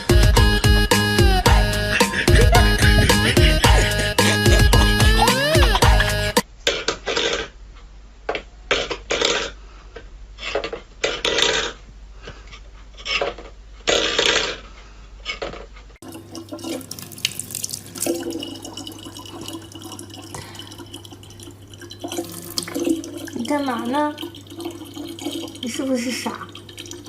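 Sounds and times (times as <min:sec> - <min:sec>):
water running from a tap: 0:16.0 - 0:27.0
water splashing: 0:16.0 - 0:27.0.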